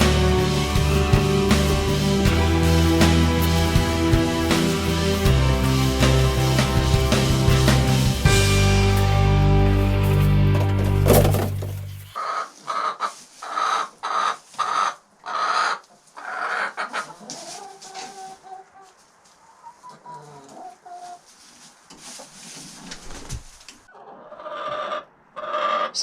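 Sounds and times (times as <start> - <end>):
hens clucking: 9.9 - 22.3, 23.9 - 26.0.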